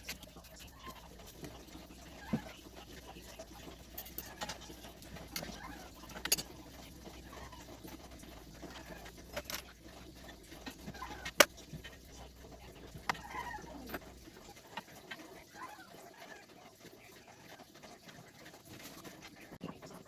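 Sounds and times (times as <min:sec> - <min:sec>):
chickens clucking: 0:00.2 - 0:16.4
clicks and knocks of tools: 0:06.2 - 0:06.5.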